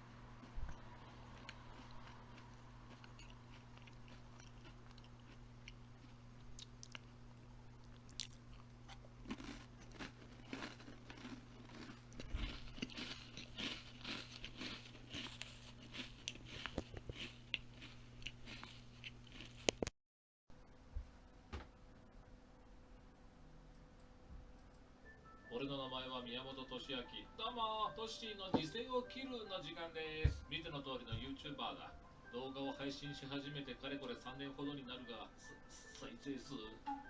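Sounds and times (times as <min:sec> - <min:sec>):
steady low hum: 0:00.0 - 0:19.8
person chewing crunchy food: 0:00.3 - 0:19.9.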